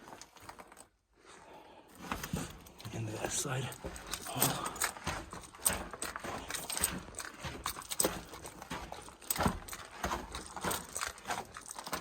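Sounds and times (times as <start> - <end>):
footsteps on rocky floor: 0.0 - 12.0.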